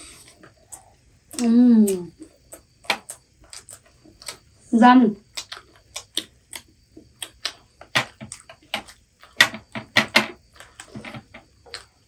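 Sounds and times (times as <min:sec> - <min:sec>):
crunchy fried chicken being chewed: 0:02.2 - 0:04.6, 0:05.2 - 0:09.8, 0:10.4 - 0:12.0.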